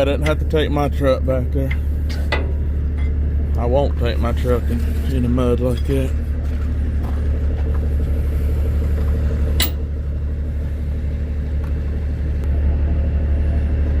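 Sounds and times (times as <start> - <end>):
diesel truck engine idling: 0.0 - 14.0.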